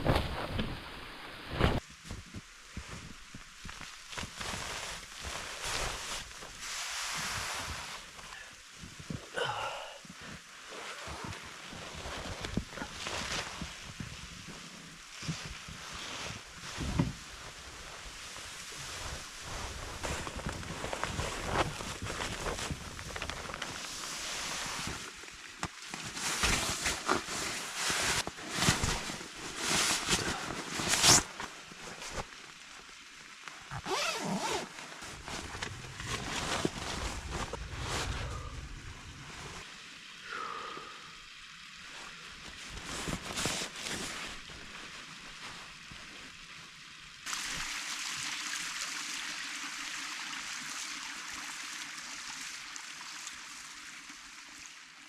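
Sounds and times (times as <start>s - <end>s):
tent fabric rustling and scraping: 0.0s - 9.2s, 10.2s - 39.7s, 42.0s - 46.5s
steady hiss: 0.0s - 55.0s.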